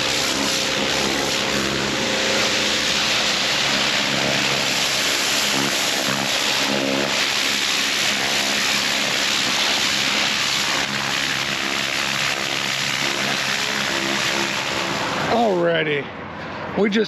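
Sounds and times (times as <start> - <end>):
high-pressure water spraying on concrete: 0.0 - 15.6
pressure washer engine hum: 0.0 - 16.3.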